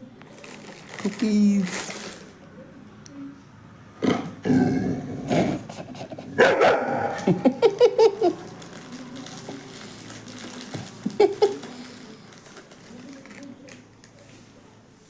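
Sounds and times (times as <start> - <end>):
dog barking and yelping: 6.3 - 7.6.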